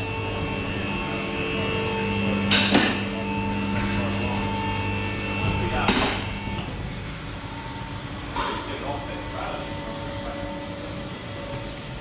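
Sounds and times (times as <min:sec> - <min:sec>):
workshop machinery humming: 0:00.0 - 0:12.0
sharp knocks: 0:02.5 - 0:03.0, 0:05.5 - 0:06.3.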